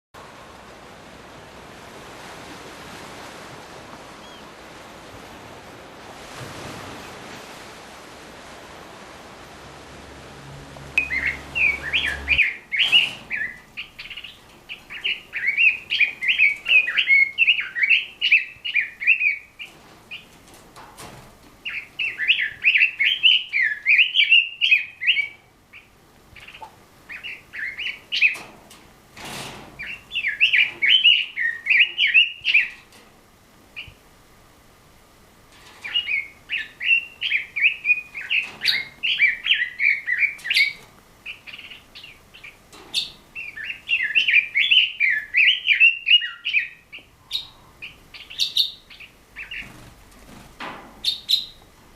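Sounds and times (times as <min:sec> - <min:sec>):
steady hiss: 0:00.2 - 0:45.4
bird singing warbling phrases: 0:11.0 - 0:20.4, 0:21.6 - 0:28.4, 0:29.8 - 0:32.9, 0:35.8 - 0:49.8, 0:51.0 - 0:51.7.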